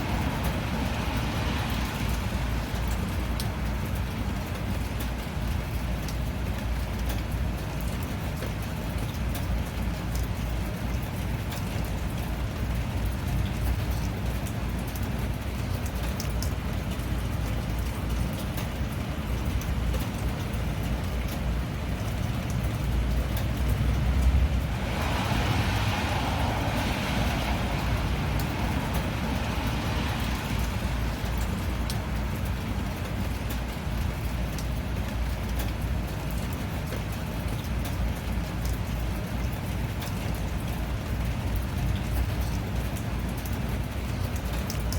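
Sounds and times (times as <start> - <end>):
raindrops ticking: 0.0 - 44.9
steady rain: 0.0 - 44.9
louder rain hiss: 24.0 - 32.2.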